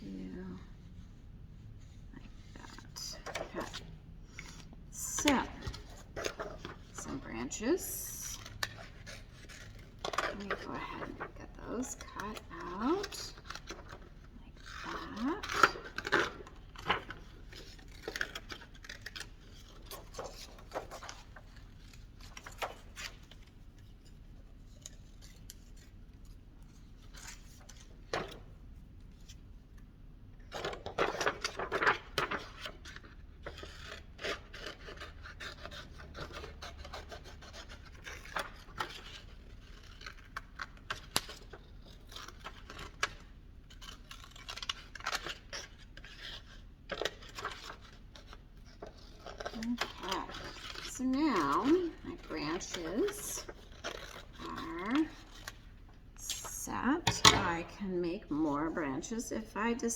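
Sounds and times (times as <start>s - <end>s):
paper rustling: 1.8s - 29.4s, 30.5s - 59.5s
scissors snipping paper: 8.3s - 23.5s, 30.5s - 55.7s.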